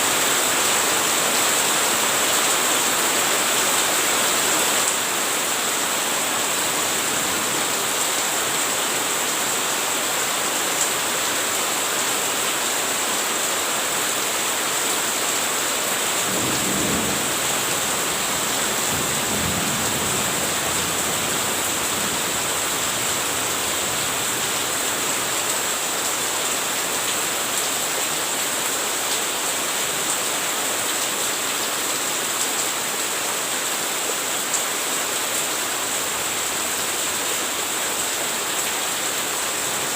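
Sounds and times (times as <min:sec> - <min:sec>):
steady rain hiss: 0:00.0 - 0:39.9
low thunder rumbles: 0:16.3 - 0:22.5.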